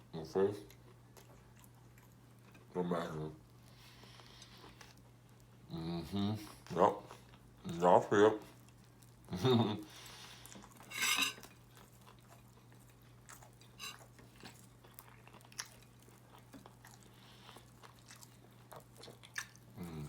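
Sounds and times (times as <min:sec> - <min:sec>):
quiet chewing with mouth clicks: 0:00.5 - 0:02.8, 0:03.4 - 0:07.8, 0:08.4 - 0:20.0.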